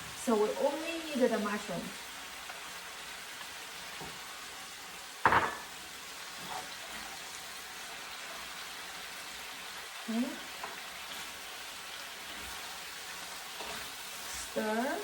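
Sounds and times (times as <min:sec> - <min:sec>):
food sizzling in oil in a pan: 0:00.0 - 0:15.0
utensil striking pan: 0:05.2 - 0:05.7.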